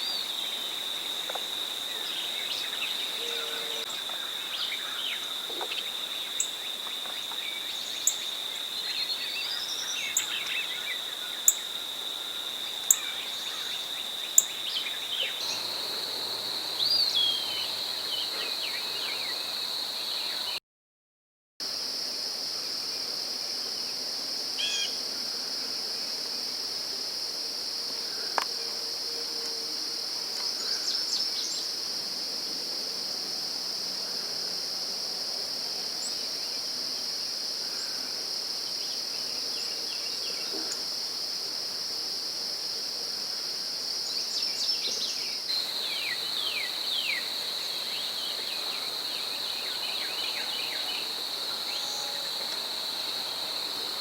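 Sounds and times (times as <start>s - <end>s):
high-pitched insect chorus: 0.0s - 20.6s, 21.6s - 54.0s
songbirds chirping: 0.0s - 20.6s, 44.1s - 54.0s.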